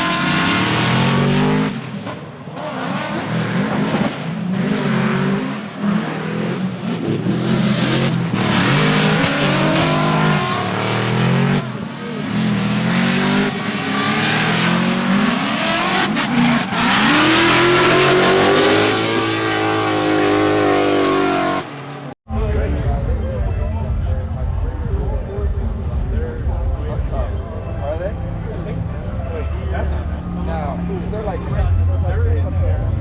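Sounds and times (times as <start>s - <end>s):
car engine revving hard: 0.0s - 22.2s.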